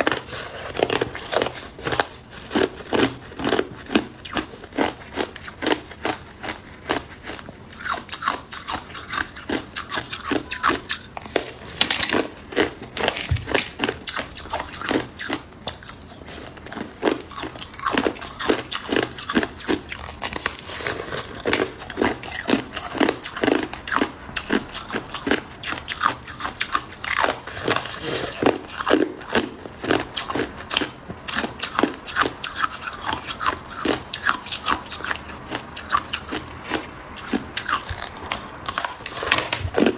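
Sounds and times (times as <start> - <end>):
ice cubes crunching: 0.0 - 25.3.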